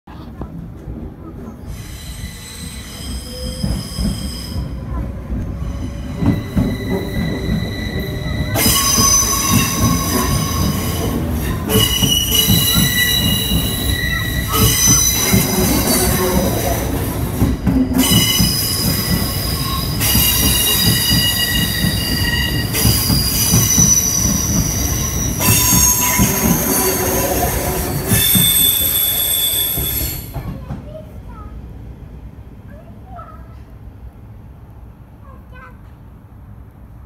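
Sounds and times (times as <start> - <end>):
wheels rumbling and knocking on rails: 0.1 - 32.6
train wheels squealing: 1.6 - 4.8, 5.6 - 16.8, 17.9 - 30.4.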